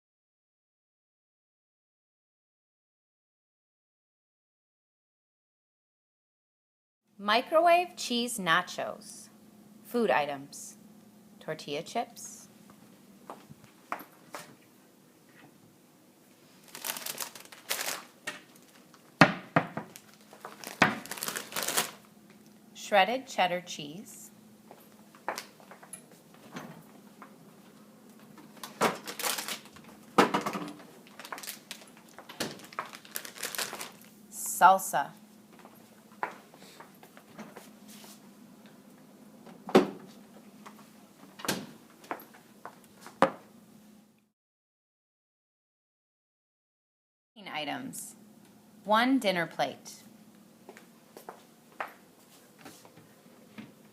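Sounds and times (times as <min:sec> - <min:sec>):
faint steady hum: 0:07.1 - 0:44.3
plastic chip bag rustling: 0:16.5 - 0:19.1, 0:19.9 - 0:22.1, 0:28.5 - 0:34.1.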